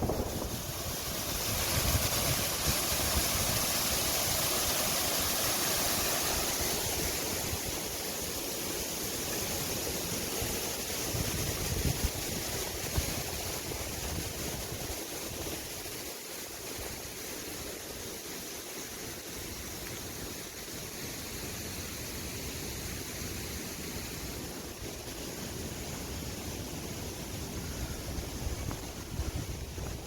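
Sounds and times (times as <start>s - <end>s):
strong wind buffeting microphone: 0.0s - 4.6s, 11.1s - 15.6s, 27.4s - 30.0s.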